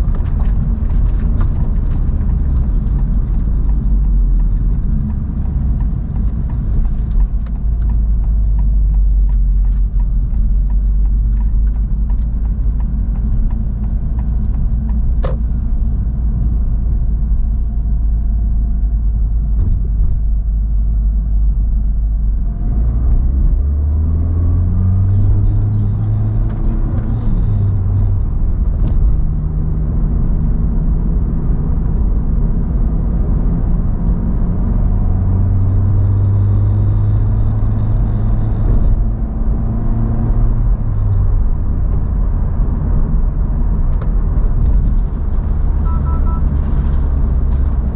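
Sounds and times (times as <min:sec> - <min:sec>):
road and tyre rumble: 0:00.0 - 0:47.9
light ticks: 0:00.9 - 0:15.5
car engine revving: 0:22.6 - 0:29.6.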